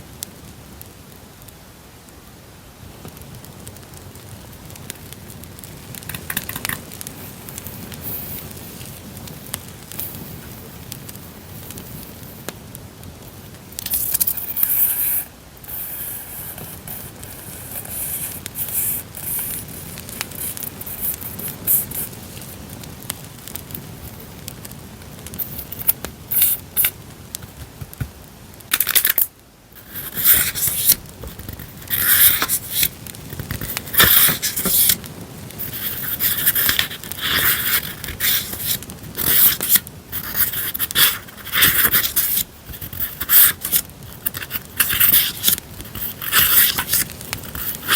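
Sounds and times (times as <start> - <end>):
campfire crackling: 0.0 - 47.9
paper rustling and scraping: 13.8 - 22.6, 25.4 - 28.1, 28.7 - 47.9.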